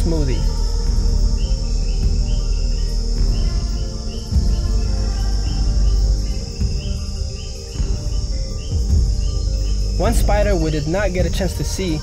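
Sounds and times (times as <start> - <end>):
insect chirps: 0.0 - 12.0
insect chorus trilling: 0.0 - 12.0
low background music: 0.0 - 12.0.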